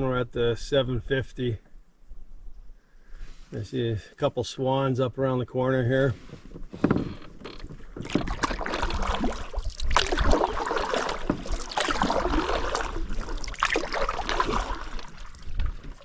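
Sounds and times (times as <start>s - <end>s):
paddle splashing in water: 6.2s - 16.0s.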